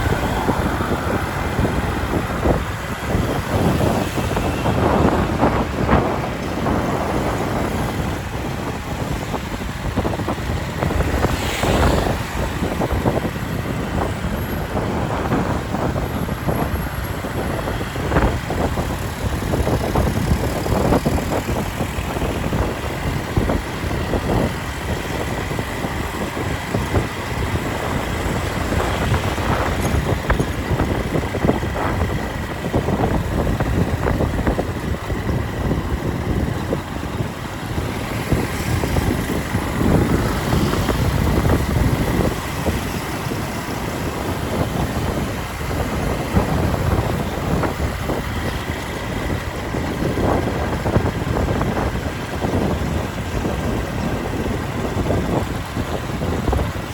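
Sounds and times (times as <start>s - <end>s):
surrounding traffic: 0.0s - 56.9s
wind buffeting microphone: 0.0s - 56.9s.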